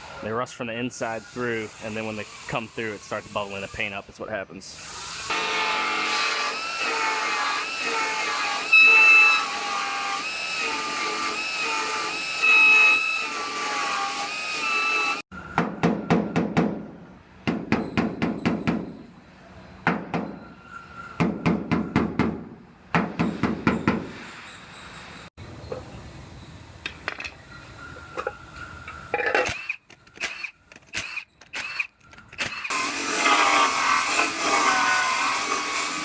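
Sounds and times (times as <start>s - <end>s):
power grinder on sheet metal: 0.9s - 4.0s, 4.7s - 15.2s, 32.7s - 36.0s.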